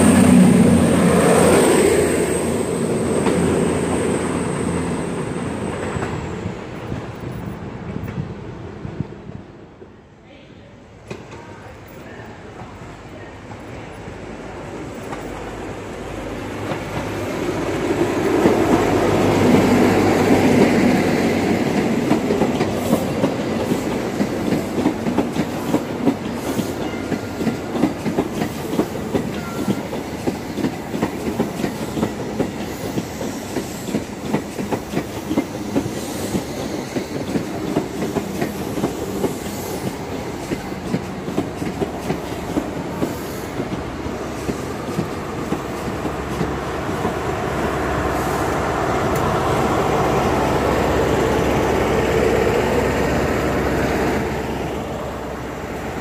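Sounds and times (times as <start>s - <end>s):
diesel train passing close: 0.0s - 56.0s
wheels clickety-clack over rail joints: 14.9s - 15.6s, 16.4s - 47.7s.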